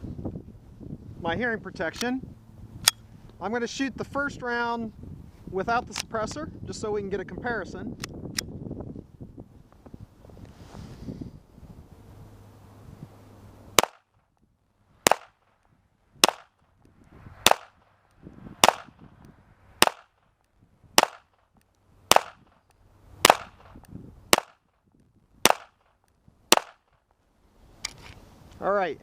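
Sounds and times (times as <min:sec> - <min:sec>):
pistol shots: 0:13.8 - 0:14.1, 0:15.0 - 0:15.5, 0:16.2 - 0:16.6, 0:17.4 - 0:17.8, 0:18.6 - 0:19.0, 0:19.8 - 0:20.2, 0:21.0 - 0:21.4, 0:22.1 - 0:22.6, 0:23.2 - 0:24.7, 0:25.4 - 0:25.9, 0:26.5 - 0:27.0.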